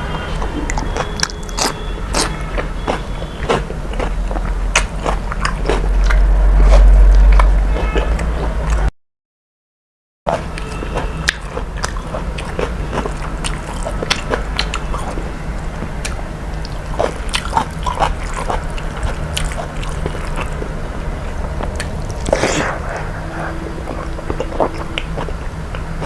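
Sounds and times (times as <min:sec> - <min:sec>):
steady low hum: 0:00.0 - 0:08.9, 0:10.3 - 0:26.0
person chewing food: 0:00.3 - 0:08.9, 0:10.3 - 0:26.0
mouth smacks: 0:21.6 - 0:25.4.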